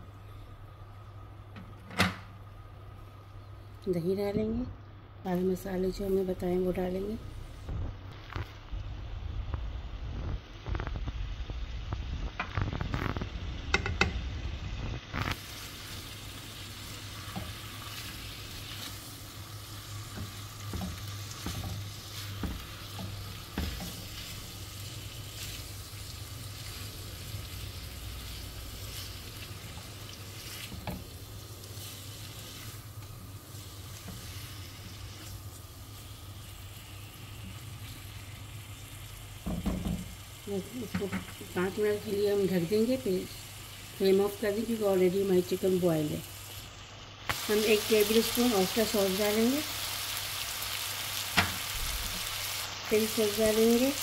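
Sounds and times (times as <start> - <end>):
chicken sizzling in oil: 8.5 - 54.0.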